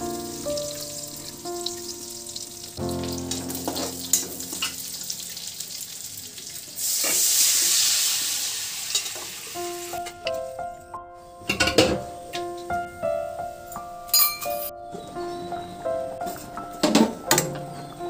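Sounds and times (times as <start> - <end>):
background music with held notes: 0.0 - 5.6, 9.5 - 18.0
food frying in oil: 0.0 - 10.0
loud sizzling hiss: 0.0 - 10.1.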